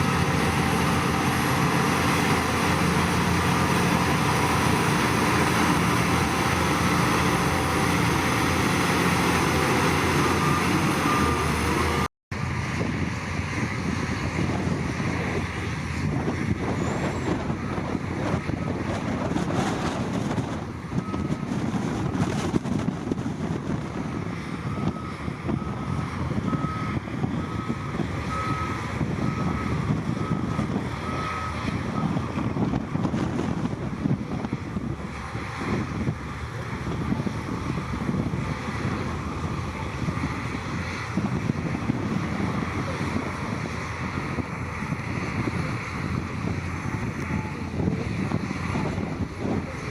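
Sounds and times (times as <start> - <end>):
diesel machinery rumbling: 0.0 - 49.9
reversing alarm beeping: 9.7 - 12.1, 24.2 - 32.2.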